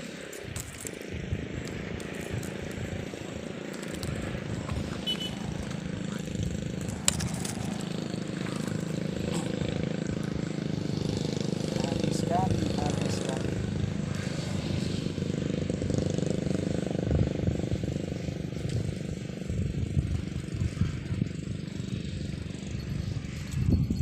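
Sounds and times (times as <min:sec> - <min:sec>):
motor engine running: 0:00.0 - 0:24.0.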